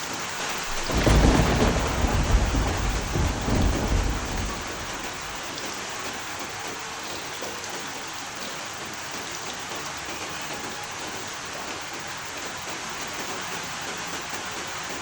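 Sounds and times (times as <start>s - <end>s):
heavy rain hissing: 0.0s - 15.0s
thunder rumbling: 0.4s - 5.7s.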